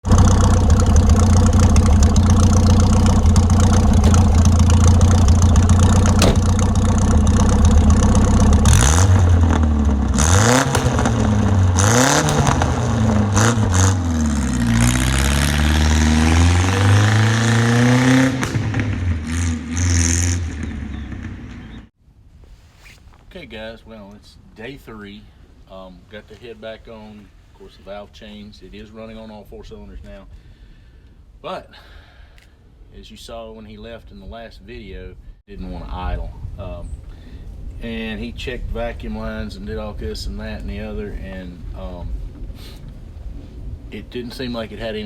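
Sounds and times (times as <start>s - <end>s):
car engine revving: 0.0s - 21.9s.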